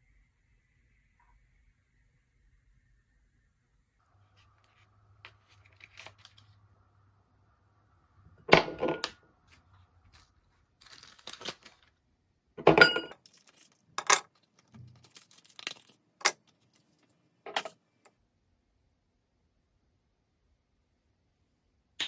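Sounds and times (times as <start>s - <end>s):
kitchenware clattering: 8.5s - 9.2s, 12.6s - 14.3s, 17.5s - 17.8s.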